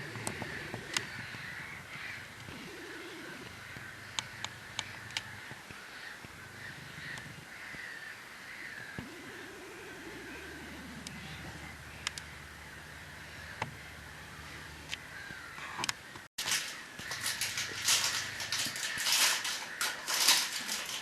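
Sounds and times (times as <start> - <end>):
sharp clicks: 0.0 - 1.3, 2.4 - 6.4, 12.0 - 12.3, 14.8 - 21.0
birds cawing: 0.0 - 21.0.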